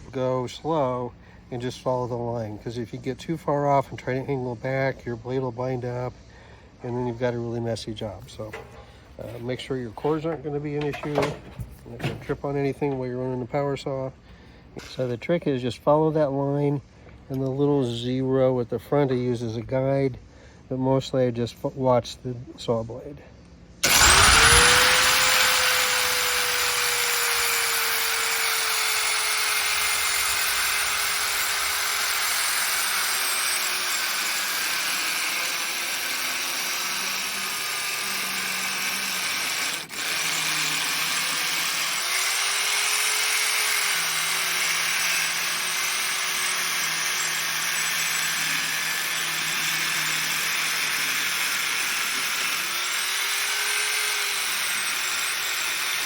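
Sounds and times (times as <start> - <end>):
circular saw cutting wood: 23.8 - 56.0.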